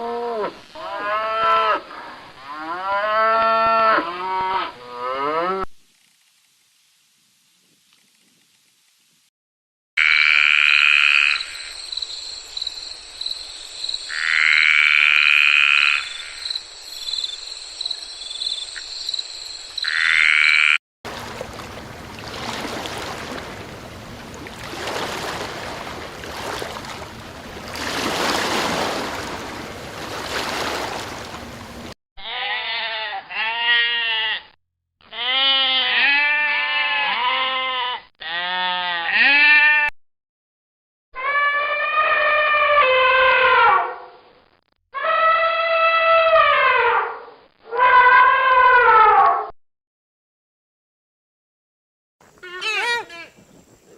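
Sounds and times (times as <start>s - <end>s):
frogs calling: 10.0s - 20.8s, 52.3s - 53.9s
quavering bleat-like calls: 32.2s - 39.9s, 52.4s - 53.3s.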